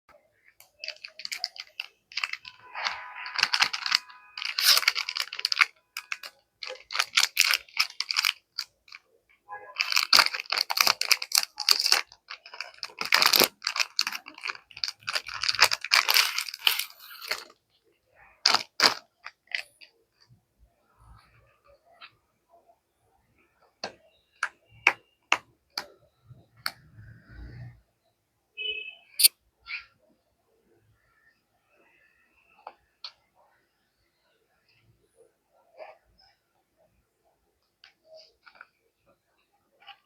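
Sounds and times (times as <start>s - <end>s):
paper rustling and crinkling: 0.8s - 9.0s, 9.8s - 17.6s, 18.4s - 19.8s.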